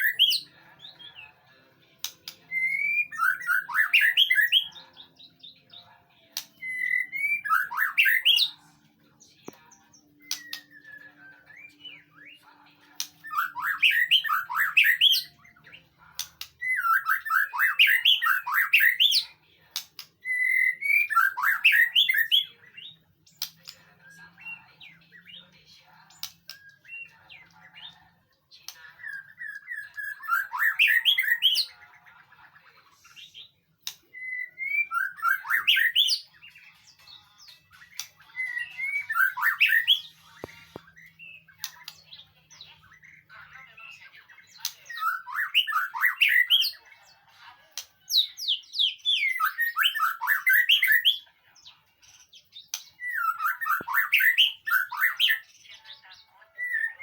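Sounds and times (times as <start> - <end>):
bird singing whistled notes: 2.4 - 5.6, 6.4 - 8.6, 10.1 - 12.4, 13.2 - 15.4, 16.4 - 19.3, 20.2 - 23.0, 29.0 - 31.7, 34.1 - 36.6, 37.8 - 43.3, 44.4 - 46.8, 48.1 - 51.3, 52.6 - 55.6, 56.5 - 57.0.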